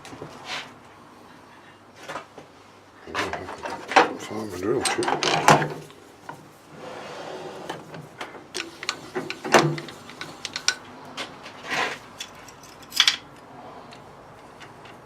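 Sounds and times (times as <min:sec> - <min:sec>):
metal tools clinking: 0:03.5 - 0:05.6, 0:12.0 - 0:13.4.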